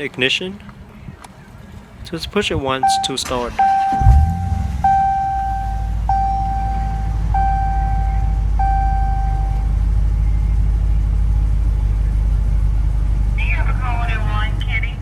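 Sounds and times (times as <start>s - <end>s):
car engine idling: 2.5s - 15.0s
dashboard chime: 2.8s - 9.7s.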